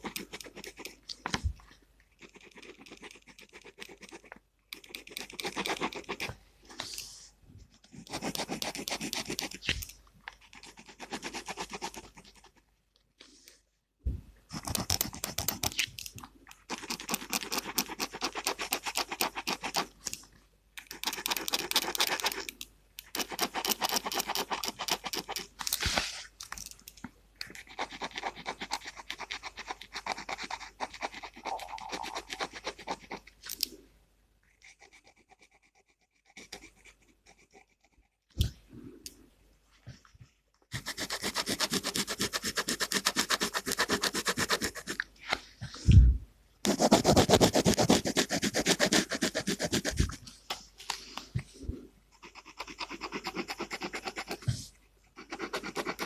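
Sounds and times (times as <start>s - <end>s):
pen scratching on paper: 0.0s - 1.4s, 2.2s - 7.2s, 7.8s - 12.6s, 14.5s - 15.9s, 16.6s - 20.1s, 20.8s - 22.5s, 23.1s - 26.1s, 27.5s - 33.3s, 34.5s - 38.4s, 40.7s - 45.0s, 46.6s - 50.3s, 52.1s - 56.0s.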